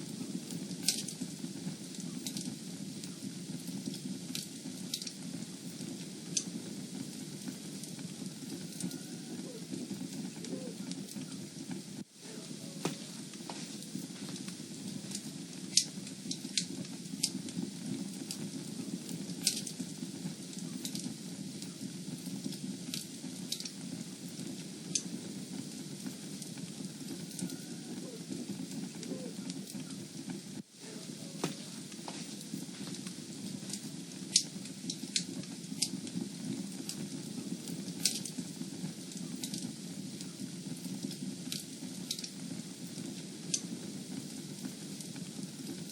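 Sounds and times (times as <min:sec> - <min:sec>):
fire burning with low rush: 0:00.0 - 0:45.9
fire crackles and pops: 0:00.0 - 0:45.9.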